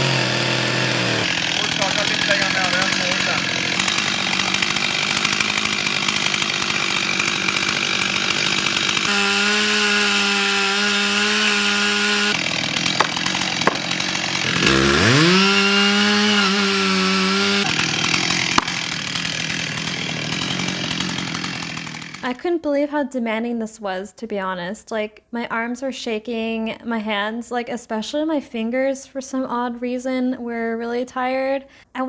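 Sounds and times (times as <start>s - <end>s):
chainsaw cutting wood: 0.0s - 22.4s.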